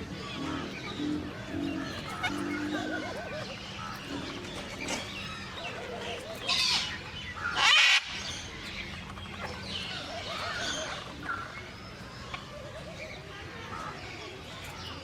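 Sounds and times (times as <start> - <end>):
parrots chattering: 0.0 - 15.0
loud harsh parrot squawks: 7.4 - 8.2.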